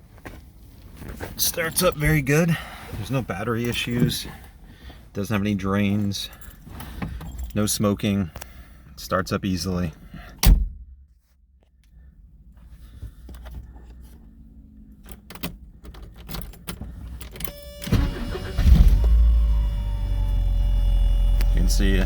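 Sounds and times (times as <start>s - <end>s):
keys clicking and jangling: 15.0s - 17.5s
car engine cranking and starting: 15.0s - 22.0s.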